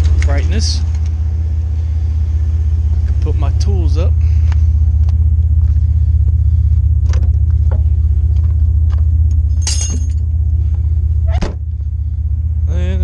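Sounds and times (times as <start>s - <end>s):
vehicle engine idling: 0.0s - 13.0s
metallic jingle of tools: 9.6s - 10.2s.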